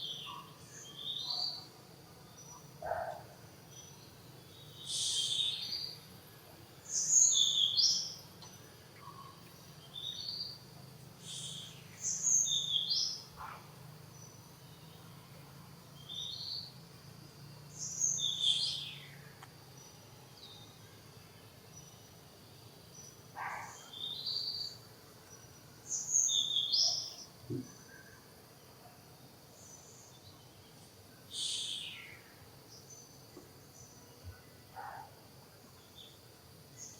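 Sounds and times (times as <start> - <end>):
songbird chirping: 0.0 - 36.9.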